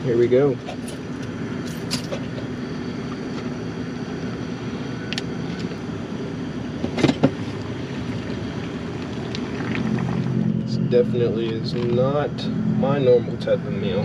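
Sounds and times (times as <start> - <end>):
water boiling on gas burner: 6.9 - 10.6.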